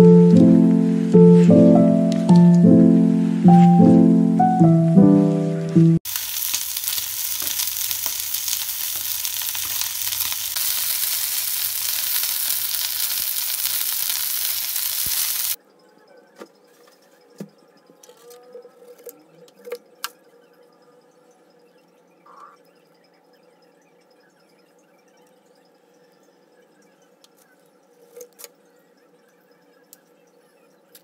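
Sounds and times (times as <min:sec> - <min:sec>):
piano music: 0:00.0 - 0:06.1
fish sizzling in a pan: 0:06.1 - 0:15.6.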